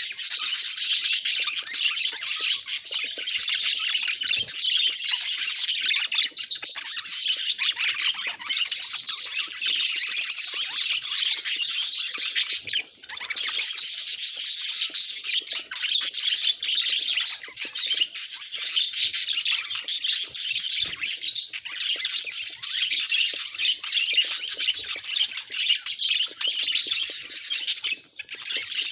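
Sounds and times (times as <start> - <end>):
budgerigars chattering and warbling: 0.0 - 28.9.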